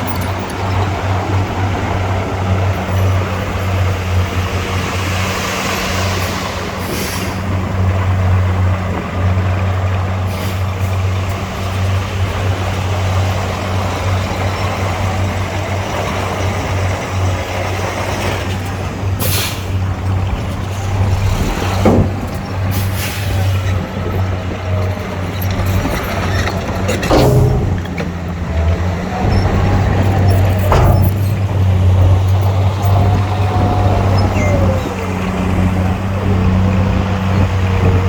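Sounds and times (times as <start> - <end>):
diesel engine droning: 0.0 - 38.0
air brake hiss: 6.8 - 7.4.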